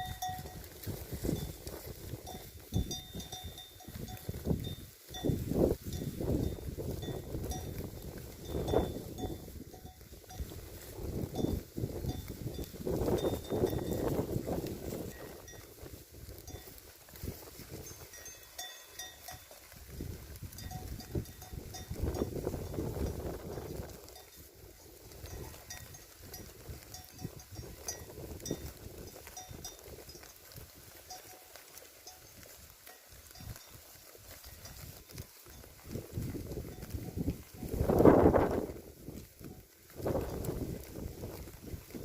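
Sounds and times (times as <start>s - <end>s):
small bell ringing: 0.0s - 0.6s, 2.2s - 7.8s, 17.9s - 19.5s
high ringing tones: 0.0s - 0.7s
sheep chewing grass: 0.0s - 42.0s.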